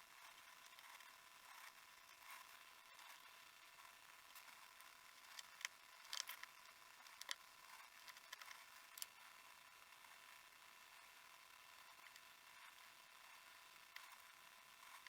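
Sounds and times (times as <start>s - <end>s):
small parts clicking and tapping: 4.3s - 9.3s, 13.9s - 14.2s.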